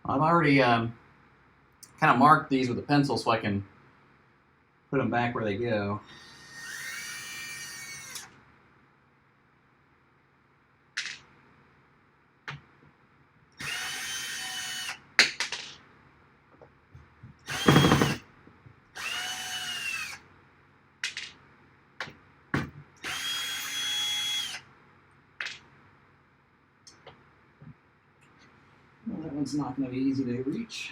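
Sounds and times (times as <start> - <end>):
cordless drill whining: 6.0 - 8.3, 13.6 - 15.0, 17.4 - 18.2, 19.0 - 20.2, 23.0 - 24.6.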